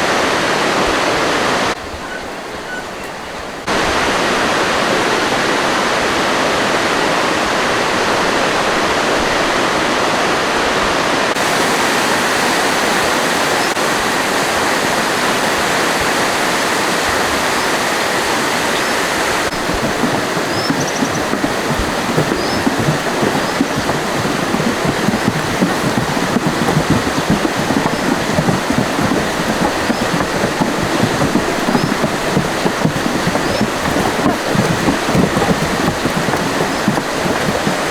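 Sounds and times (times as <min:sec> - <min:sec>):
fast-flowing water rushing: 0:11.4 - 0:37.9.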